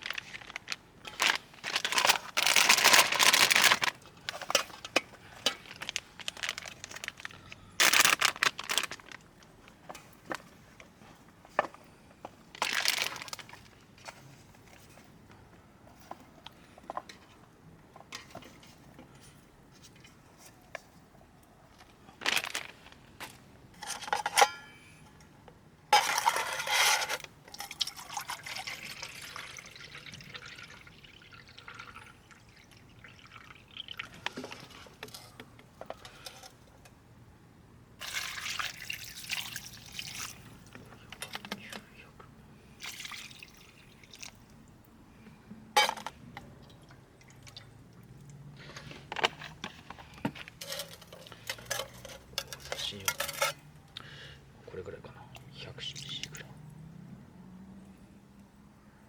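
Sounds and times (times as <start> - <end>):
liquid being poured: 27.5 - 34.6, 38.0 - 40.7, 42.8 - 44.8.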